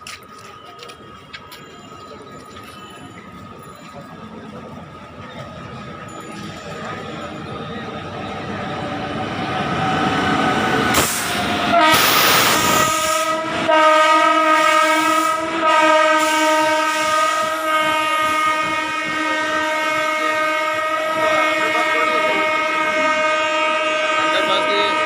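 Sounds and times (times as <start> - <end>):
train running noise: 0.0 - 25.0
locomotive air horn blasts: 10.9 - 25.0.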